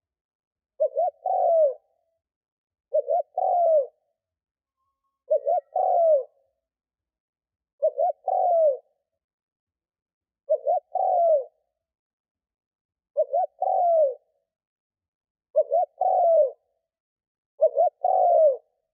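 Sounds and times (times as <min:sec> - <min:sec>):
dove cooing: 0:00.8 - 0:01.9, 0:02.9 - 0:04.0, 0:05.2 - 0:06.4, 0:07.8 - 0:09.0, 0:10.5 - 0:11.6, 0:13.2 - 0:14.3, 0:15.5 - 0:16.6, 0:17.6 - 0:18.7.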